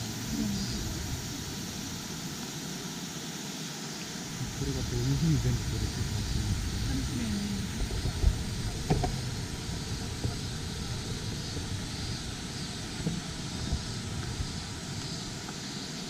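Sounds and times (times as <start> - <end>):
low rushing noise: 0.0 - 16.0
soft knocks: 8.0 - 9.3.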